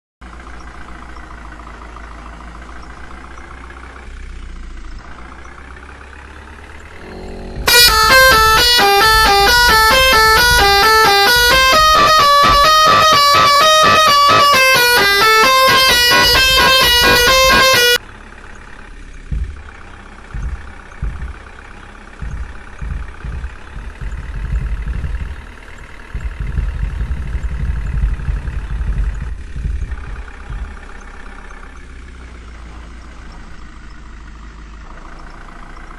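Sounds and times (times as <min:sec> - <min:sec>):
engine knocking: 0:00.2 - 0:35.9
truck engine running: 0:00.2 - 0:35.9
musical truck horn: 0:06.4 - 0:18.2, 0:22.0 - 0:32.2.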